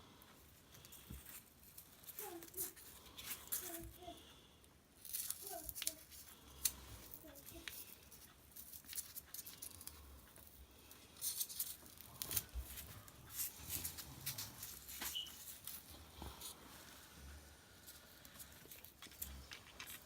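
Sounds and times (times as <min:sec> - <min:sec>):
crinkling: 0:00.6 - 0:04.2, 0:05.0 - 0:20.0
craft materials rustling: 0:11.2 - 0:17.1.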